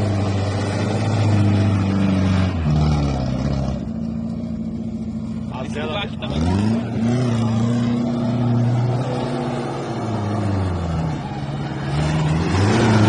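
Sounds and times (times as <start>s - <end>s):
car engine revving hard: 5.5s - 13.0s.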